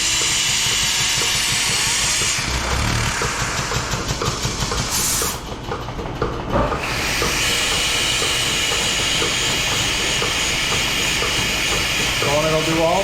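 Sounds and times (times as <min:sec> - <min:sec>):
washer cup hissing water and air: 0:00.0 - 0:05.4, 0:06.8 - 0:12.9.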